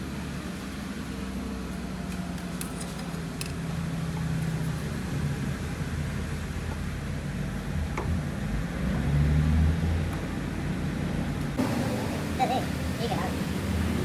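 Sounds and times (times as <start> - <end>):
workshop machinery humming: 11.6 - 14.0.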